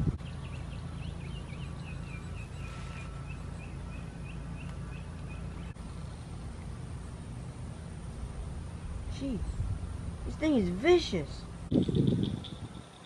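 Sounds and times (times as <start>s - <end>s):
low background rumble: 0.0s - 13.0s
small bird chirping: 0.2s - 6.3s, 11.5s - 13.0s.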